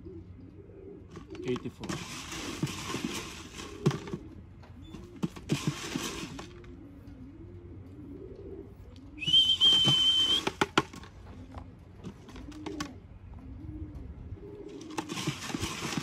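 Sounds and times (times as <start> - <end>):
pigeons cooing: 0.0 - 16.0
high whistle: 9.2 - 10.5.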